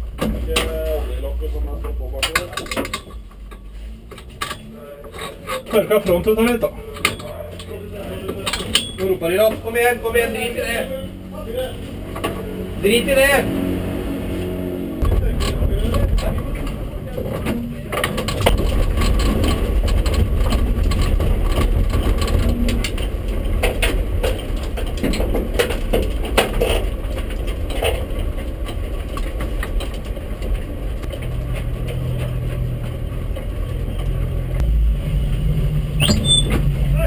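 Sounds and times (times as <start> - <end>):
clicks and rattles in car: 0.0 - 10.5, 15.0 - 34.6
car engine at low revs: 9.2 - 37.0.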